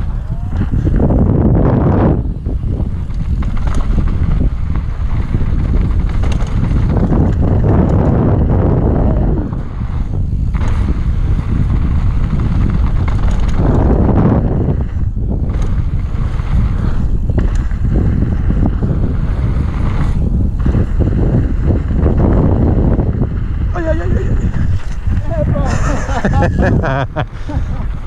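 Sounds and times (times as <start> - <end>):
bike rattling over rough trail: 0.0 - 28.0
wind buffeting microphone: 0.0 - 28.0.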